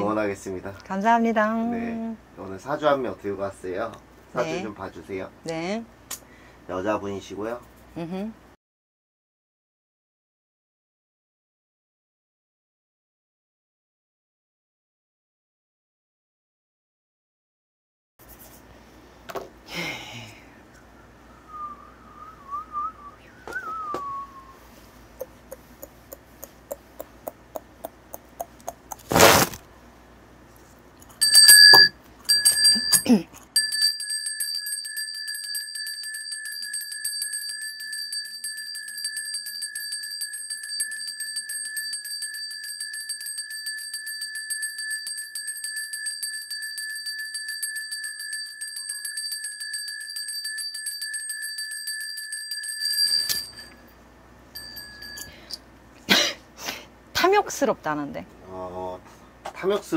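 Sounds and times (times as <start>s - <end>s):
small bell ringing: 31.0s - 55.6s.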